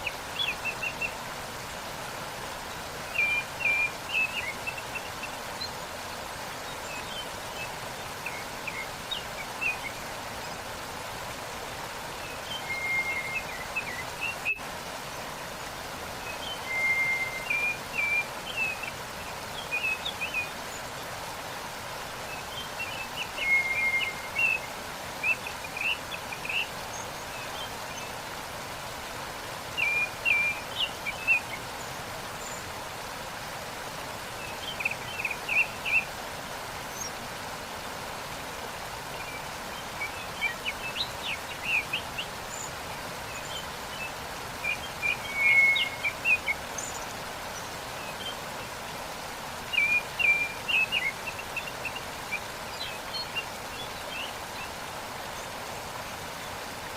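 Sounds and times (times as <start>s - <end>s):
waterfall rushing: 0.0s - 56.9s
songbird chirping: 11.4s - 28.4s, 38.6s - 49.0s, 49.6s - 56.9s.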